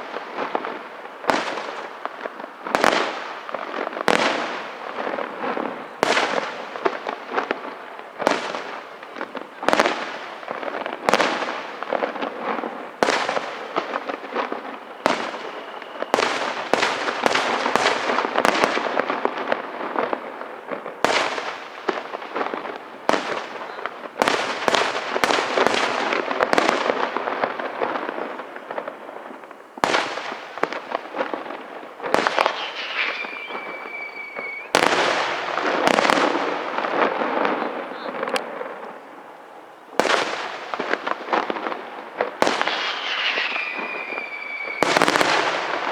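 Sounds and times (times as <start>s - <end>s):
firework crackling: 0.0s - 45.9s
high firework whistle: 14.0s - 17.8s, 32.1s - 36.5s, 42.5s - 45.9s
firework shell bursts: 32.2s - 35.2s.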